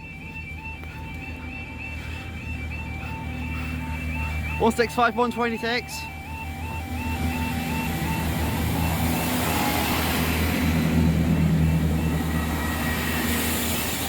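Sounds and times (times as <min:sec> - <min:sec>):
diesel train engines droning: 0:00.0 - 0:14.0
two-tone crossing alarm: 0:00.0 - 0:14.0
train wheels on rails: 0:07.1 - 0:14.0.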